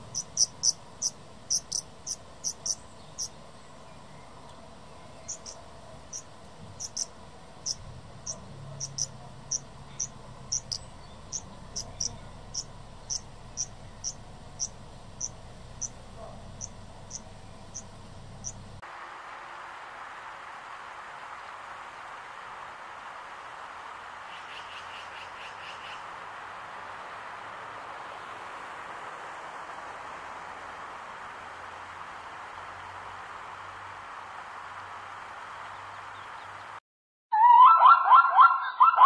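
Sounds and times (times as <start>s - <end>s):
insect chirping: 0.0s - 3.4s, 5.3s - 18.7s
steady hiss: 0.0s - 36.8s.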